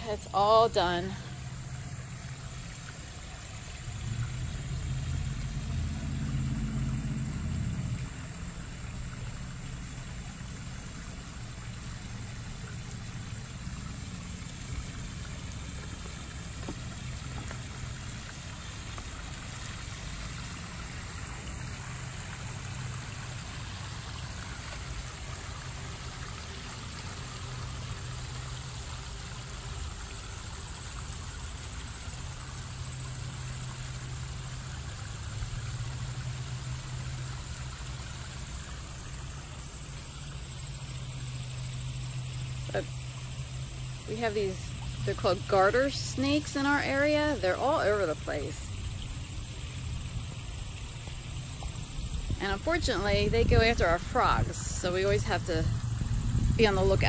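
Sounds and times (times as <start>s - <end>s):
low hum: 0.0s - 28.4s
pond waterfall splashing: 0.0s - 57.0s.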